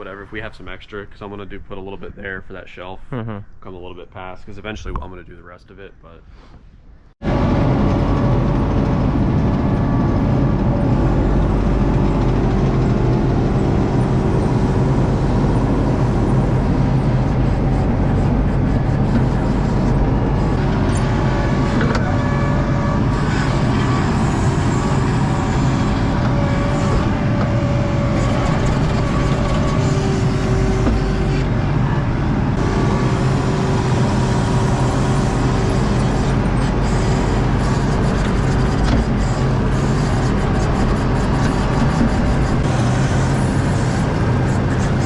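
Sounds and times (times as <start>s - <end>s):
diesel engine under load: 7.2s - 45.0s.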